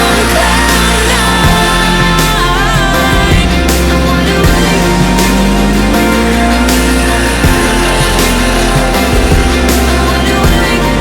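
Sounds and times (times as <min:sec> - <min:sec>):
rock music with singing: 0:00.0 - 0:11.0.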